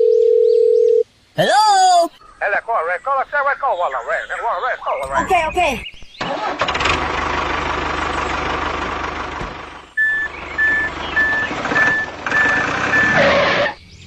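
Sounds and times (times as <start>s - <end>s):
truck engine running: 6.2s - 13.7s
reversing alarm beeps: 10.0s - 13.2s.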